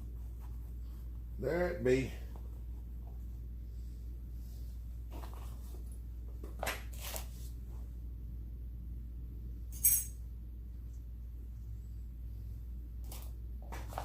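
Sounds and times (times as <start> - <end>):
steady low hum: 0.0 - 14.0
metal parts handling sounds: 9.7 - 10.1
sharp metallic clink: 9.8 - 10.2.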